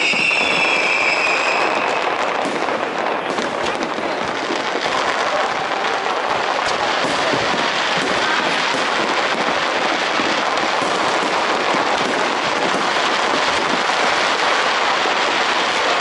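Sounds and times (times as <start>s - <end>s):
fireworks bursting and crackling: 0.0s - 16.0s.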